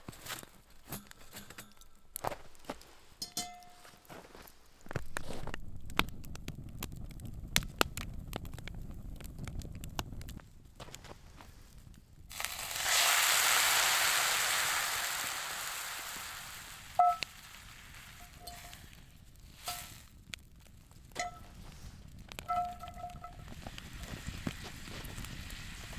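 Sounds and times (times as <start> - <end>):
sharp metal clinks: 3.2 - 4.0
food sizzling in a hot pan: 12.3 - 20.1, 22.4 - 25.9.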